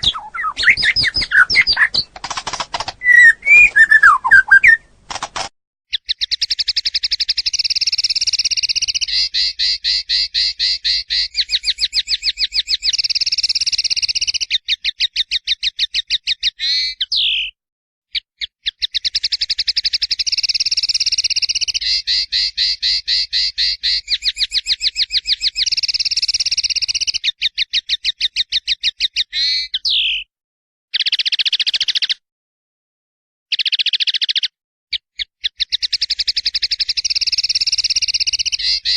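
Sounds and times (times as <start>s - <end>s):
songbird trilling: 0.0s - 2.2s, 2.9s - 4.9s, 6.0s - 15.5s, 18.7s - 30.2s, 35.2s - 38.9s.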